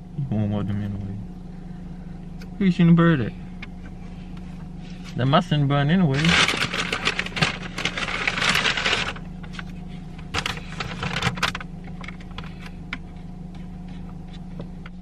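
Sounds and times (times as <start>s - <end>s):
car cabin hum: 0.0s - 15.0s
rustling: 6.1s - 11.3s.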